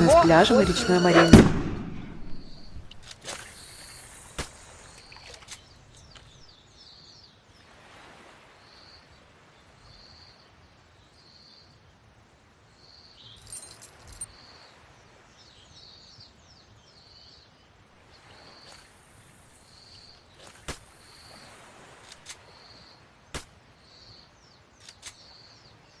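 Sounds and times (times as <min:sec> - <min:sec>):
bird repeating high flat note: 0:00.0 - 0:05.2
quick falling bird chirps: 0:00.0 - 0:06.5, 0:18.4 - 0:24.1
sharp clicks: 0:24.8 - 0:25.2.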